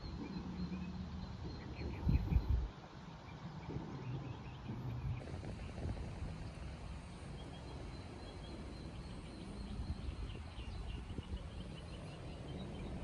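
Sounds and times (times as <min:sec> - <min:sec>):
small birds chirping: 0:00.0 - 0:13.0
steady low rumble: 0:03.4 - 0:13.0.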